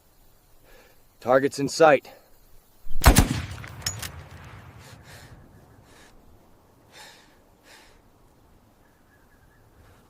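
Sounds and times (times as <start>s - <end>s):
faint breathy puffs: 0.6s - 1.1s, 4.7s - 8.2s, 9.7s - 10.0s
sharp clicks: 3.0s - 4.9s
heavy boom with low rumble: 3.0s - 5.5s.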